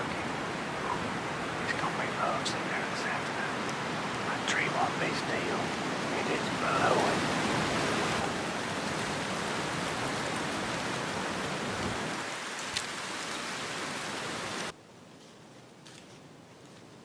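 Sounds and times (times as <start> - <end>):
strong wind rushing: 0.0 - 12.2.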